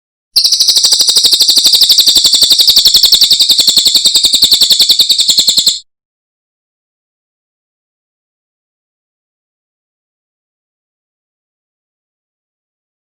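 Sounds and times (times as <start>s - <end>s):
bird high-pitched trill: 0.4s - 5.8s.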